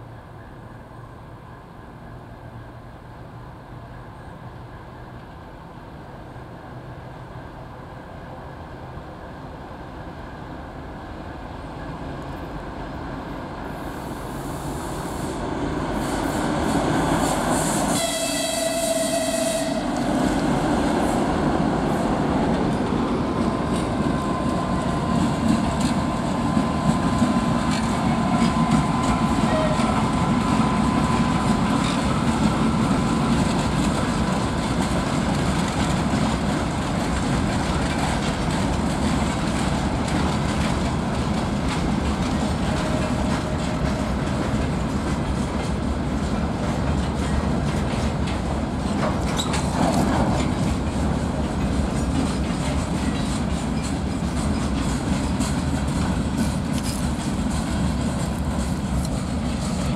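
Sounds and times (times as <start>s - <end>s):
diesel locomotives approaching: 0.0s - 59.9s
locomotive horn blast: 17.9s - 20.0s, 29.4s - 30.2s
wheels clicking over rail joints: 22.4s - 59.9s.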